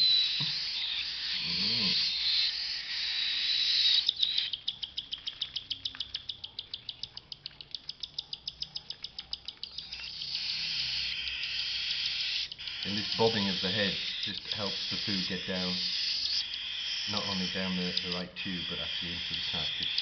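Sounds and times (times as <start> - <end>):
chicks begging hiss: 0.0 - 4.4, 10.0 - 20.0
chicks rhythmic chirping: 0.0 - 20.0.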